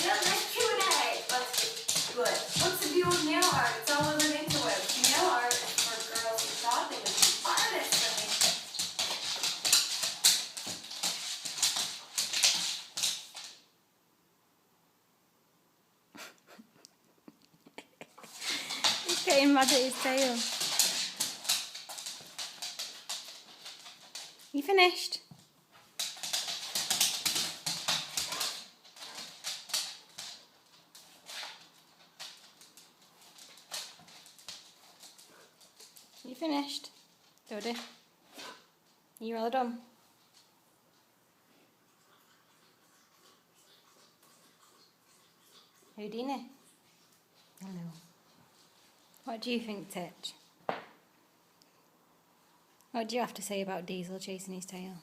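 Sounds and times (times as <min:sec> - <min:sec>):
paws scrabbling: 0:00.0 - 0:13.6, 0:17.6 - 0:24.5, 0:25.3 - 0:38.6.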